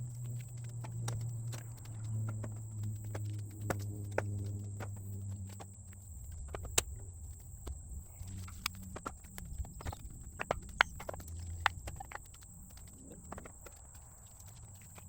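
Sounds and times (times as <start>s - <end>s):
low steady hum: 0.0s - 15.0s
firewood clunking in a tote: 7.7s - 14.2s.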